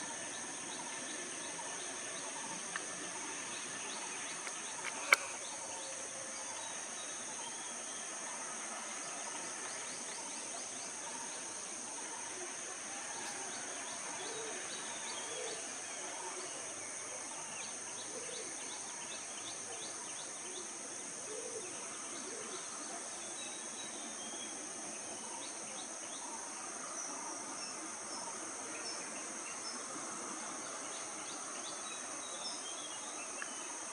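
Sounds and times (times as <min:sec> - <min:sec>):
birds chirping: 0:00.6 - 0:05.9
sharp click: 0:04.4 - 0:05.4.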